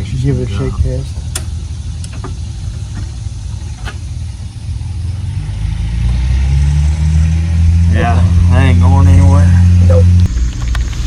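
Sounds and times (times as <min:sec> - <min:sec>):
low rumble: 0:00.0 - 0:11.0
car clicks and knocks: 0:01.2 - 0:04.1.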